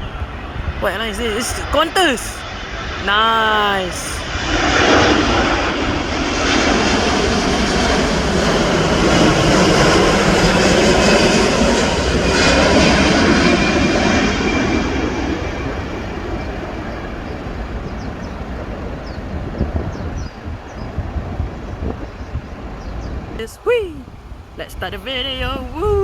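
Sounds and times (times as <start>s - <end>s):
jet airliner passing by: 4.2s - 18.1s.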